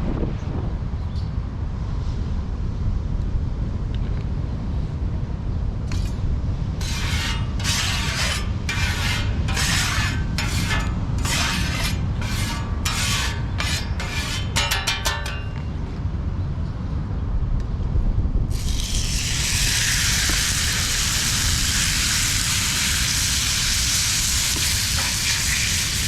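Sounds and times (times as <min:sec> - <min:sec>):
wind buffeting microphone: 0:00.0 - 0:14.0, 0:15.5 - 0:26.0
rasping scraping strokes: 0:05.9 - 0:06.2, 0:06.8 - 0:15.7, 0:18.5 - 0:26.0.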